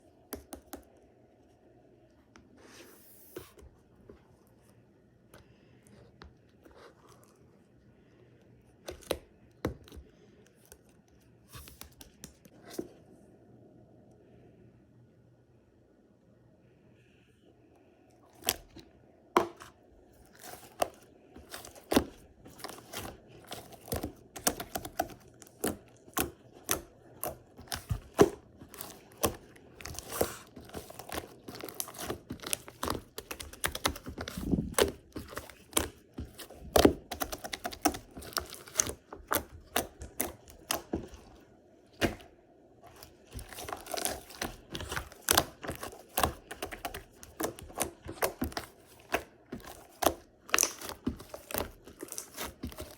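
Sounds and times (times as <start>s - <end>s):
slime squished by hand: 20.3s - 52.9s.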